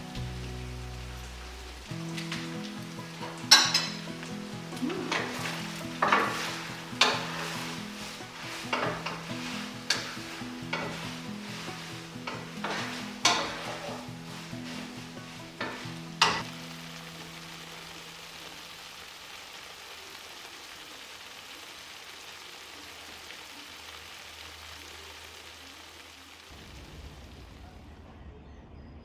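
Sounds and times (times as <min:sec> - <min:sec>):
noodles sizzling in a pan: 0:00.0 - 0:27.6
utensil scraping and clanking pan: 0:02.0 - 0:16.5.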